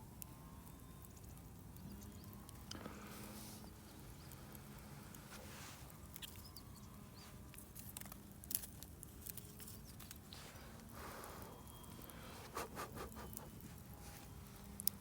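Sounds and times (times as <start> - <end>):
campfire crackling and popping: 0.2 - 3.0, 7.5 - 13.8.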